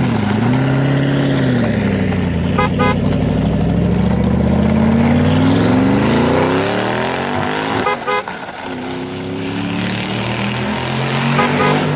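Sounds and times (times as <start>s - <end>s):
vehicle engine revving: 0.0s - 11.9s
horn toot: 2.5s - 3.1s, 7.5s - 8.4s, 11.1s - 11.9s.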